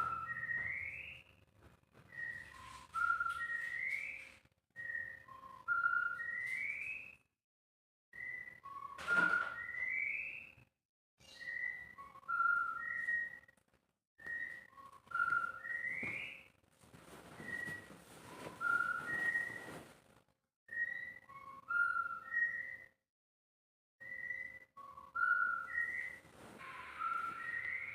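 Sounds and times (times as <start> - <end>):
bird singing whistled phrases: 0.0 - 1.3, 2.1 - 7.2, 8.2 - 10.6, 11.2 - 13.5, 14.2 - 16.5, 20.7 - 23.0, 24.0 - 27.9.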